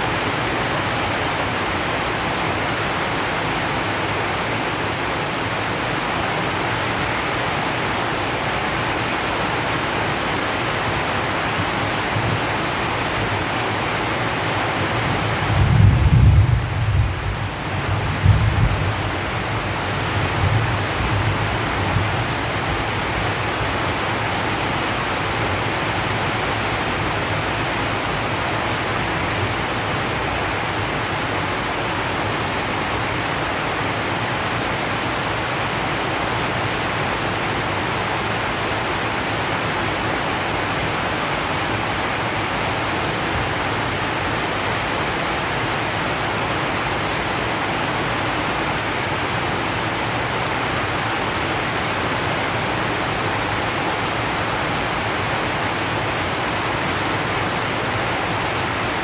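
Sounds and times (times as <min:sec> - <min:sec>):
rain on a metal roof: 0:00.0 - 0:59.0
low thunder rumble: 0:15.5 - 0:19.2.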